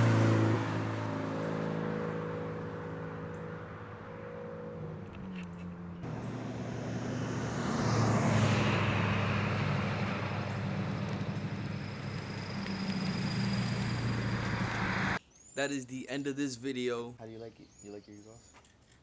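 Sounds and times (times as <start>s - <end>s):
car exhaust droning: 0.0s - 15.2s.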